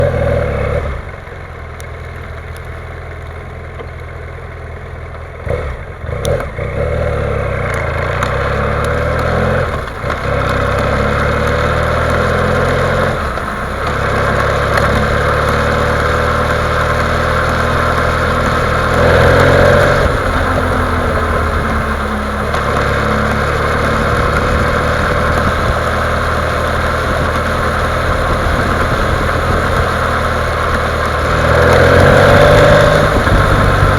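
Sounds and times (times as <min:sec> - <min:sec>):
motorcycle engine idling: 0:00.0 - 0:33.9
engine knocking noise: 0:07.6 - 0:33.9.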